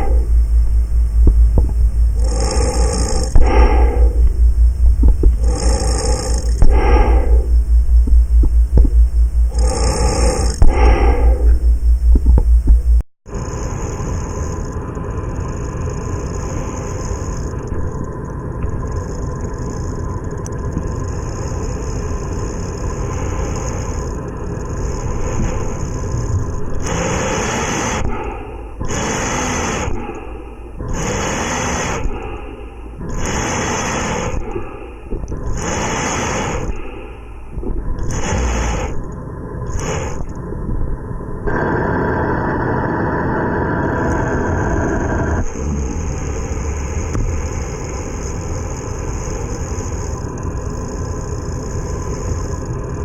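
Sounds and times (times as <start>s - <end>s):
rhythmic rushing breaths: 0.0s - 13.0s, 22.9s - 46.8s
steady rushing of air: 0.0s - 13.0s, 22.9s - 49.2s.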